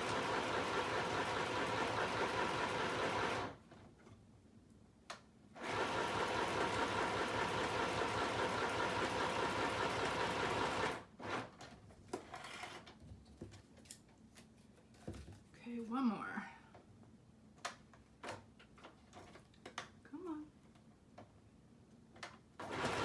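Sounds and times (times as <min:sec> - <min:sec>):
sewing machine stitching: 0:00.0 - 0:03.6, 0:05.6 - 0:11.5, 0:22.6 - 0:23.0.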